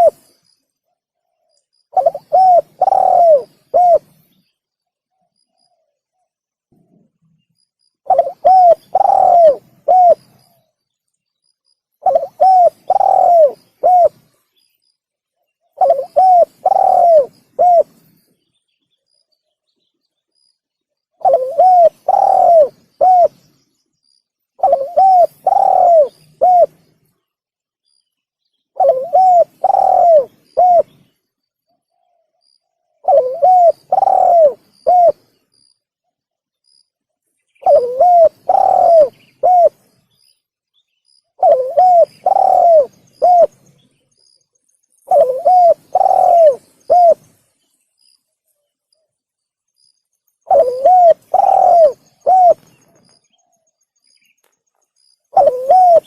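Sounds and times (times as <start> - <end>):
dove cooing: 0.0 - 0.3, 1.9 - 4.2, 8.0 - 10.6, 12.0 - 14.4, 15.8 - 18.0, 21.2 - 23.5, 24.6 - 26.8, 28.8 - 31.1, 33.0 - 35.3, 37.6 - 39.8, 41.3 - 43.6, 45.1 - 47.4, 50.4 - 53.1, 55.3 - 56.0.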